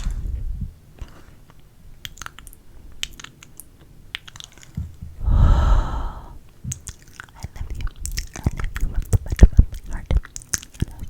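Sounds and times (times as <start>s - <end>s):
wet mouth clicks and smacks: 2.0s - 4.8s, 6.7s - 11.0s
breath across microphone: 5.2s - 6.5s.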